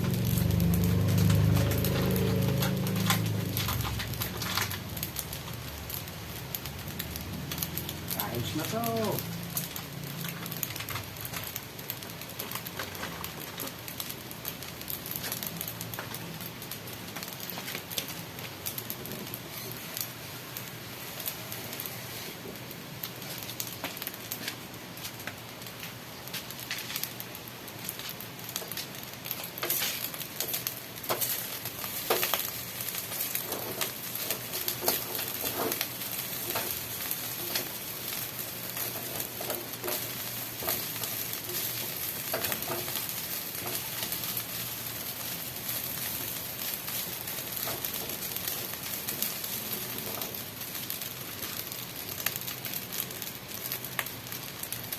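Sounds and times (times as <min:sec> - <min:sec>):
food sizzling in a pan: 0:00.0 - 0:54.9.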